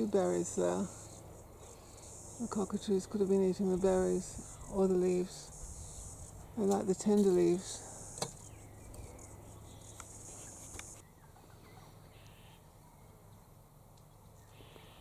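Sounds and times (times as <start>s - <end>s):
faint insect buzzes: 0.0s - 11.0s
high-pitched insect trill: 0.0s - 11.0s.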